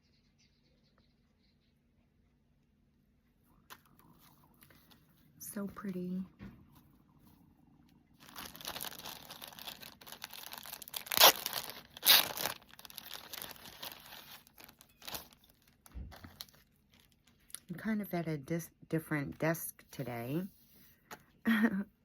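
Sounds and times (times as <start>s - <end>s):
packaging rustling and crinkling: 8.2s - 17.6s
sharp packaging crackles: 8.2s - 17.6s.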